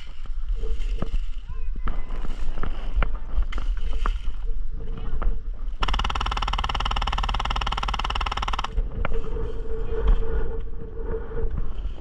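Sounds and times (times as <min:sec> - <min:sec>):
wind rumble on microphone: 0:00.0 - 0:12.0
airsoft gun full-auto burst: 0:05.8 - 0:08.8.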